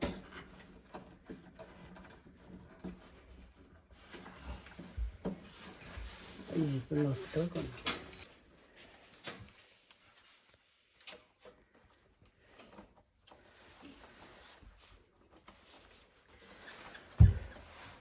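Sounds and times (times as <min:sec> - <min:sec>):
heavy low thump: 0:17.2 - 0:17.5.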